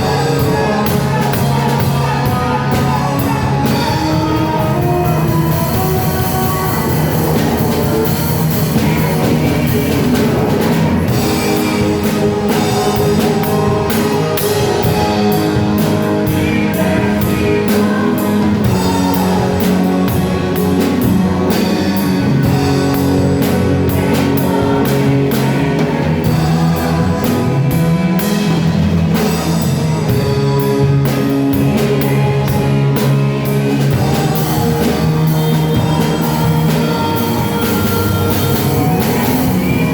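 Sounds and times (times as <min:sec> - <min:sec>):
drum kit beat: 0:00.0 - 0:39.9
guitar: 0:00.0 - 0:39.9
worship band playing: 0:00.0 - 0:39.9.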